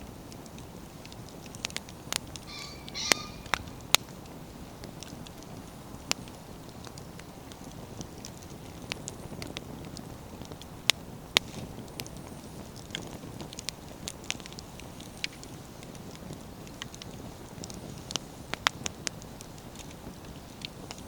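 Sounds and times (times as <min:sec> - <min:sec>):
campfire crackling and popping: 0:00.0 - 0:21.0
fire low rushing: 0:00.0 - 0:21.0.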